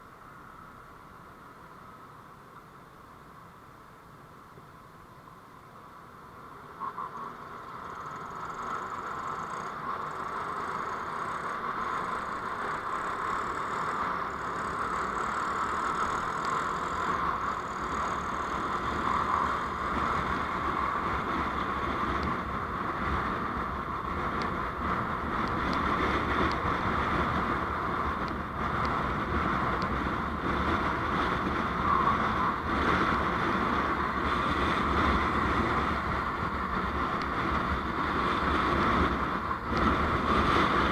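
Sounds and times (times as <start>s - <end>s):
vehicle driving on road: 0.0s - 40.9s.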